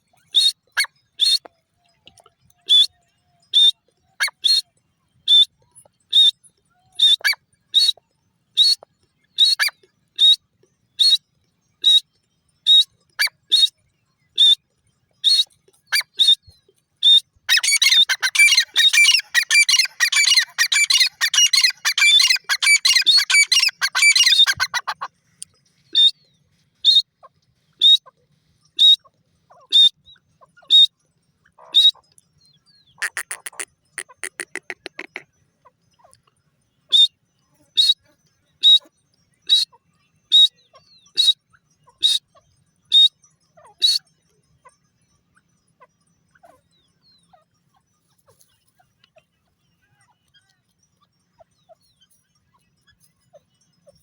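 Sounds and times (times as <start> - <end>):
rapid overlapping bird chattering: 17.1 - 26.1, 32.9 - 36.2.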